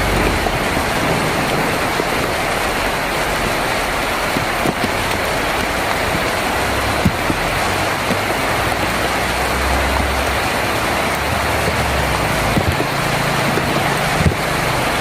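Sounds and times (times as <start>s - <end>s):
heavy rain on a tin roof: 0.0s - 15.0s.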